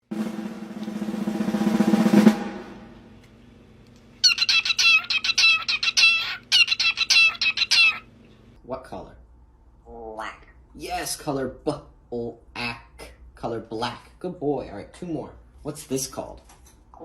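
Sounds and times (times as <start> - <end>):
drum roll: 0.0 - 3.2
parrot high-pitched calls: 4.2 - 8.3.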